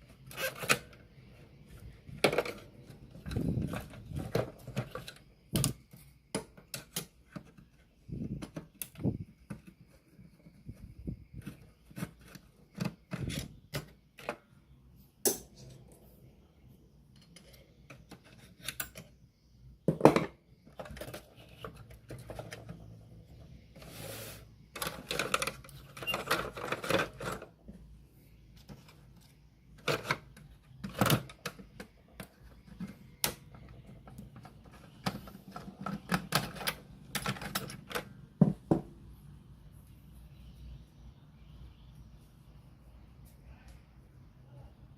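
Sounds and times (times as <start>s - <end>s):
tools clicking and tapping: 15.2s - 15.8s, 17.1s - 19.2s.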